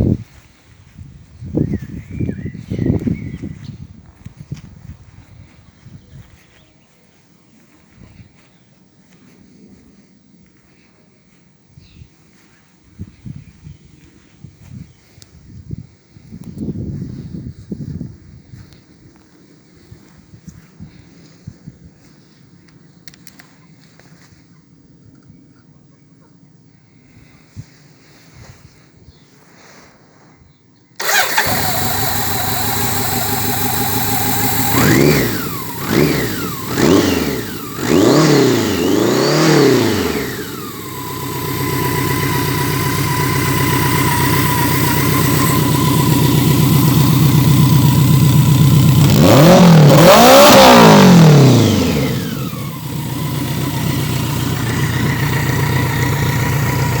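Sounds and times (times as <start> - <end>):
motorcycle engine revving and idling: 31.0 - 57.0.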